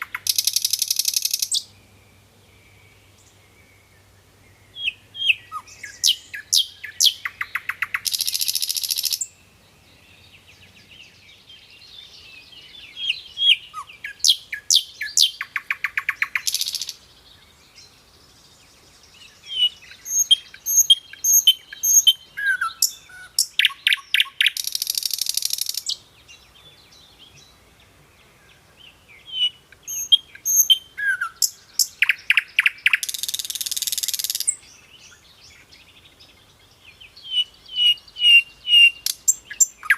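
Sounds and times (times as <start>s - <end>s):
songbird singing chirps and trill: 0.0s - 39.9s.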